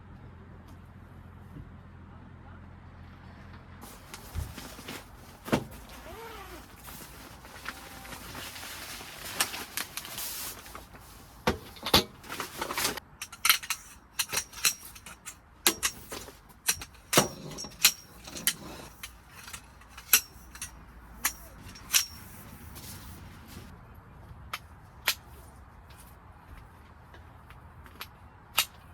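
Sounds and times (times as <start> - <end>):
rustling: 3.8 - 23.8
gear clicking and clinking: 11.7 - 23.1.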